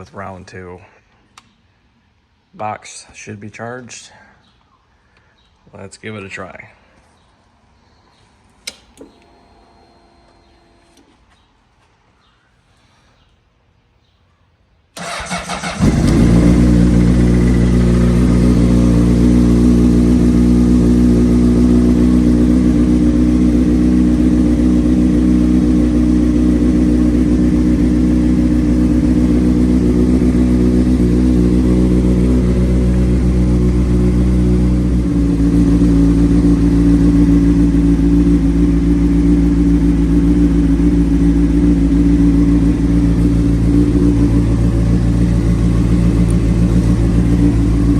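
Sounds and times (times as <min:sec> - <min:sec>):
motorcycle starter cranking: 0:15.0 - 0:18.3
motorcycle engine idling: 0:15.0 - 0:47.9.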